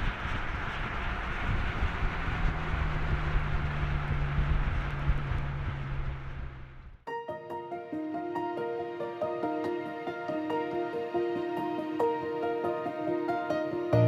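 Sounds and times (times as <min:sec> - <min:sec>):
car engine cruising: 0:00.0 - 0:07.0
tyre and wind noise: 0:00.0 - 0:07.0
music with sustained notes: 0:07.1 - 0:14.0.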